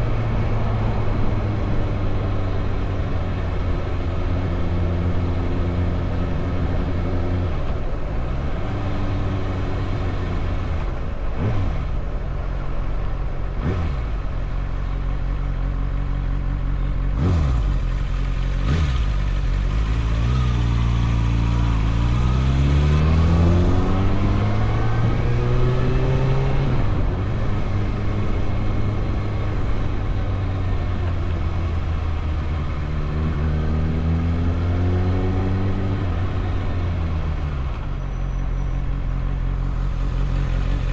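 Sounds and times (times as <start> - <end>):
motorcycle engine accelerating: 13.6 - 40.9.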